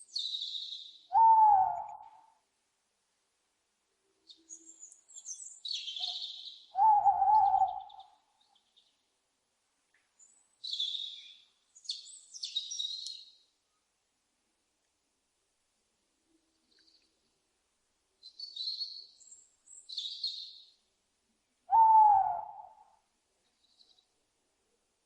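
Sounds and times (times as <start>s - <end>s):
owl hoot-like call: 1.1s - 2.4s, 6.0s - 8.2s, 21.7s - 23.0s
owl screeching: 6.8s - 8.0s, 21.7s - 22.8s.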